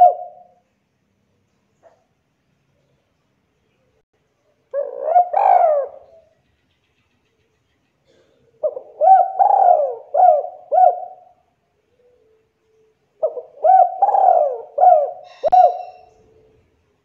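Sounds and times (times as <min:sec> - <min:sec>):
dove cooing: 0:00.0 - 0:00.6, 0:04.7 - 0:06.3, 0:08.1 - 0:12.4, 0:13.2 - 0:16.6.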